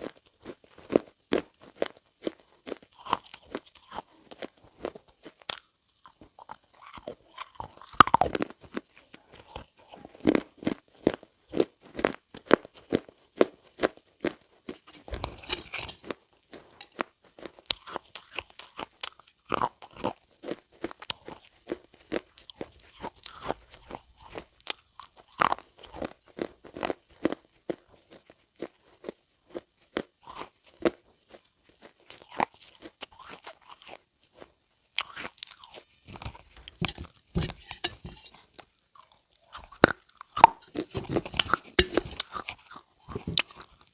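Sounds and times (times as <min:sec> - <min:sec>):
crisp crunching: 0:13.8 - 0:20.2, 0:35.0 - 0:43.9.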